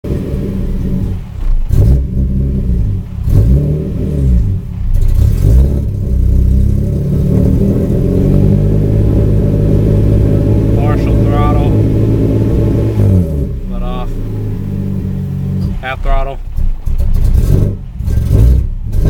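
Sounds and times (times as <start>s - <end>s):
car engine revving and sputtering: 0.0s - 19.0s
sharp engine cracks: 15.6s - 18.6s.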